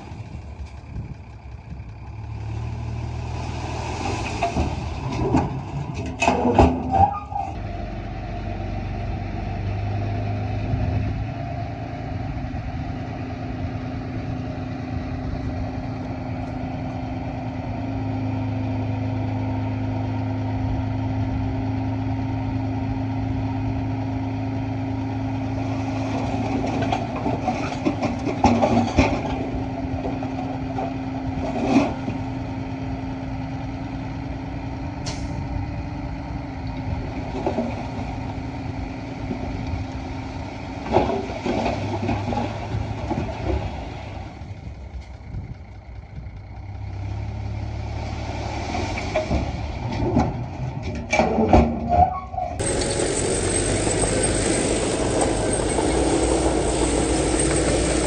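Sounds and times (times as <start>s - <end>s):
heavy diesel engine running: 0.0s - 7.0s, 7.6s - 51.4s, 52.1s - 58.0s
machinery clatter and knocks: 4.2s - 7.0s, 26.0s - 32.2s, 40.8s - 43.9s, 52.6s - 58.0s.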